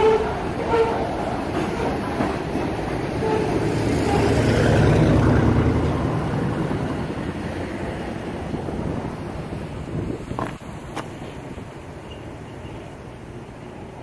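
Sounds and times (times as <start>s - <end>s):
freight train wheels rumbling: 0.0s - 14.0s.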